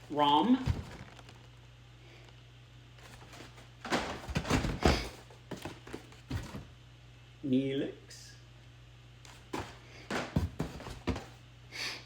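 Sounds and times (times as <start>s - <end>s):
action figure box handling knocks: 3.9s - 6.7s, 9.5s - 11.4s.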